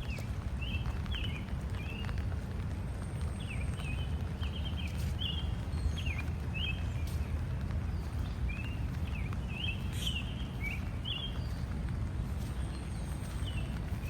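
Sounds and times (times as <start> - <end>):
birds chirping: 8.0 - 14.0.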